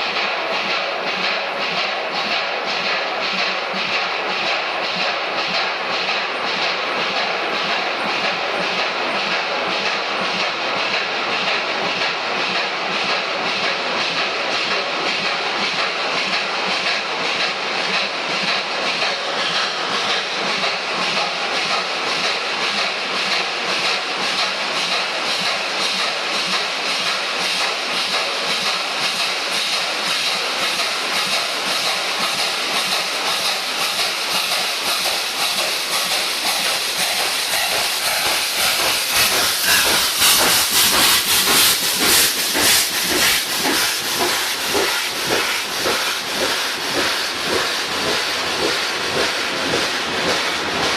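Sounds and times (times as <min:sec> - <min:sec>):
steam train running: 0:00.0 - 0:50.9
steam hissing: 0:22.6 - 0:50.9.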